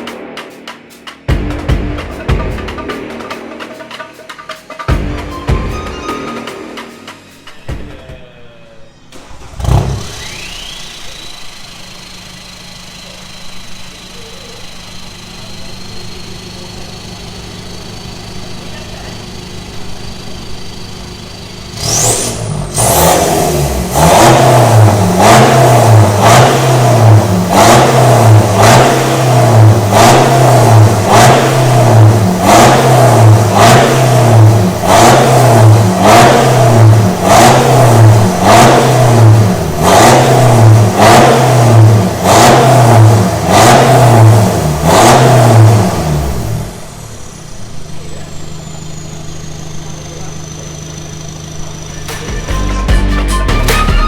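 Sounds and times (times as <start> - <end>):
diesel engine throttle blips: 8.9 - 54.0.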